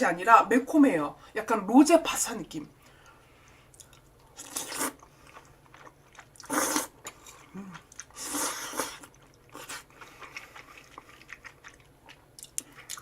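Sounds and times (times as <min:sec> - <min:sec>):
biting and chewing: 0:03.7 - 0:13.0.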